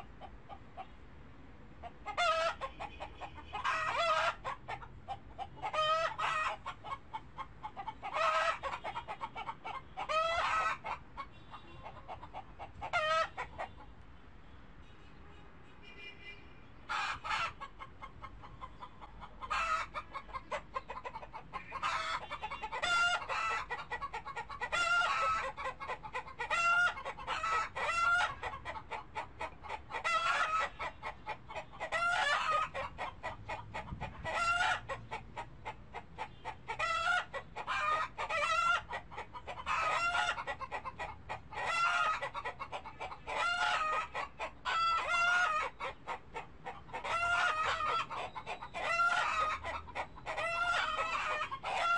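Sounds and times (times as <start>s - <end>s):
birds calling: 41.6s - 51.9s.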